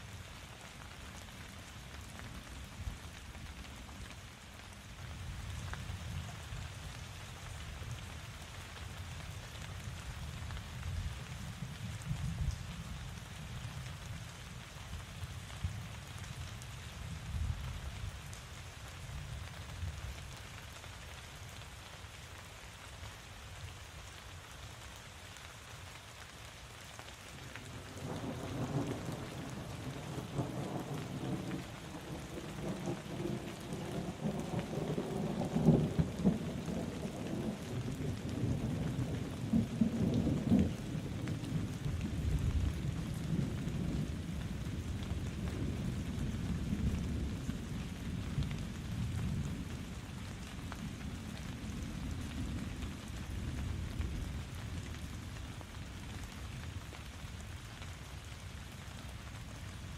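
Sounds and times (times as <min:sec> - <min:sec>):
steady rain falling: 0:00.0 - 0:59.9
thunder rumbling: 0:27.8 - 0:48.0.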